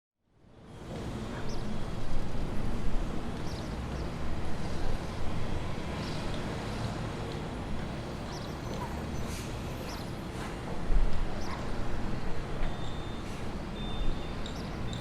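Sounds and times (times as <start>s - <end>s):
low rumble of traffic: 0.2s - 15.0s.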